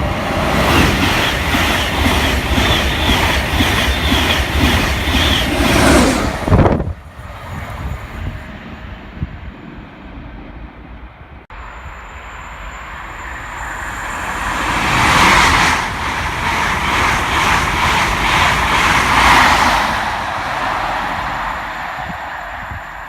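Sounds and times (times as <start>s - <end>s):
wheels beating over rails: 0.0s - 8.3s, 12.9s - 23.0s
train passing at speed: 0.0s - 23.0s.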